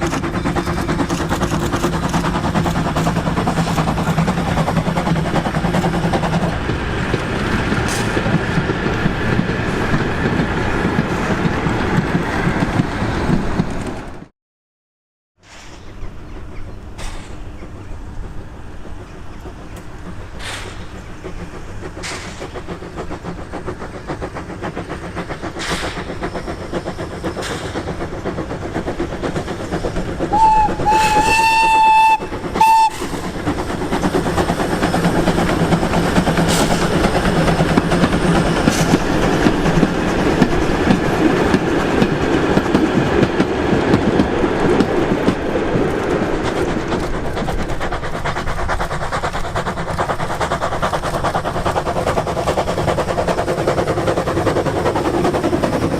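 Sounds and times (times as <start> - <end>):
steam locomotive rumbling: 0.0 - 14.3, 15.4 - 55.9
steam whistle blast: 30.3 - 33.1.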